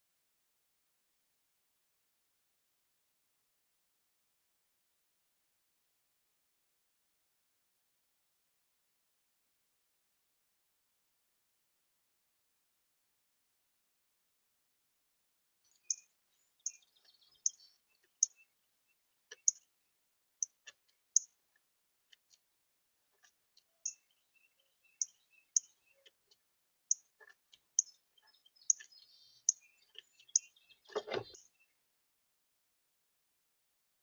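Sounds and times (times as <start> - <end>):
small bird chip calls: 15.7 - 18.6, 19.3 - 19.7, 20.4 - 21.4, 23.7 - 26.3, 26.9 - 31.8.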